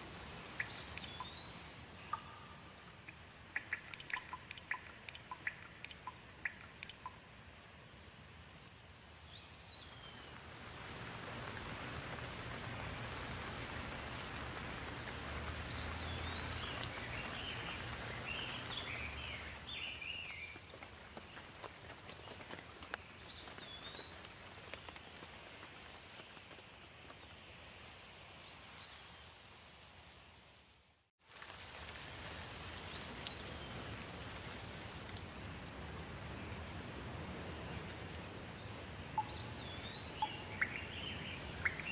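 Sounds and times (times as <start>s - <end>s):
steady rain falling: 0.0s - 41.9s
birds chirping: 3.6s - 7.2s, 12.0s - 20.6s, 36.0s - 41.9s.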